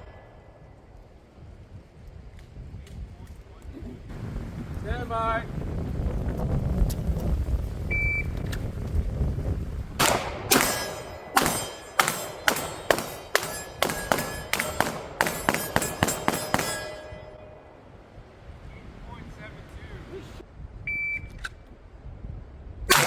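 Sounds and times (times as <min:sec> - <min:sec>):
pistol firing rapid shots: 0:10.0 - 0:17.0
faint metallic ring: 0:10.6 - 0:18.0.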